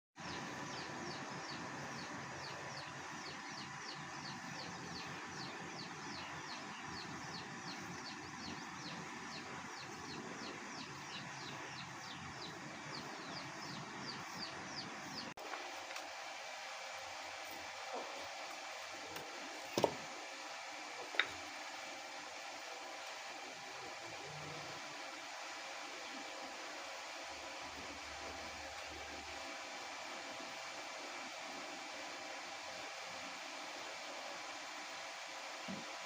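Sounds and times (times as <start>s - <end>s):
bird chirping: 0.3s - 15.3s.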